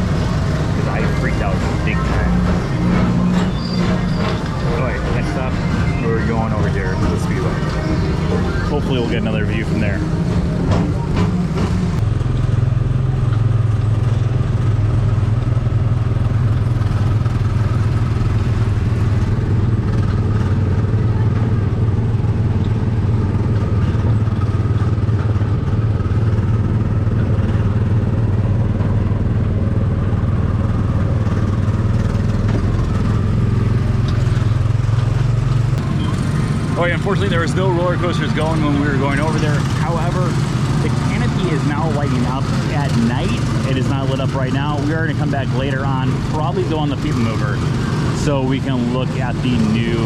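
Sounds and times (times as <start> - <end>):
small gasoline engine running: 12.0 - 50.0.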